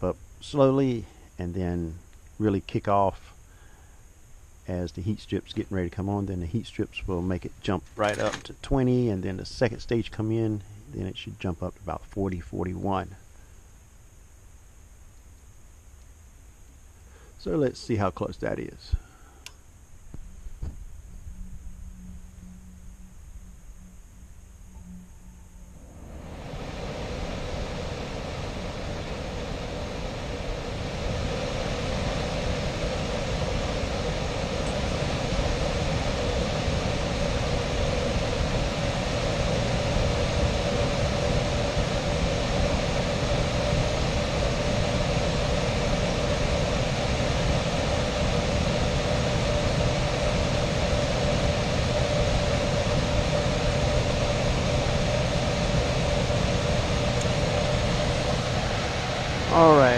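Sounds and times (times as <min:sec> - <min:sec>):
blower motor rush and hum: 0:00.0 - 0:13.5, 0:18.9 - 0:59.9.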